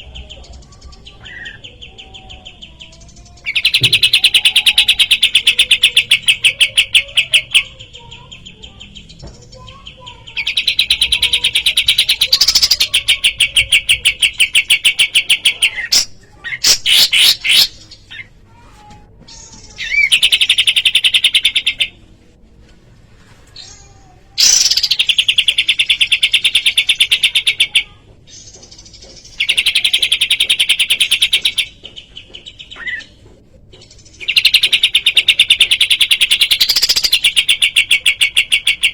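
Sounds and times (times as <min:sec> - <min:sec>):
sharp bird calls: 0:00.0 - 0:18.4, 0:24.4 - 0:33.2.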